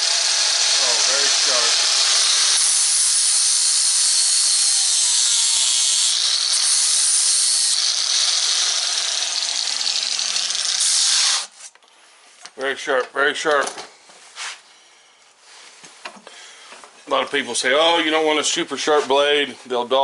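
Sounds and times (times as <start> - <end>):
power grinder grinding steel: 0.0 - 11.7.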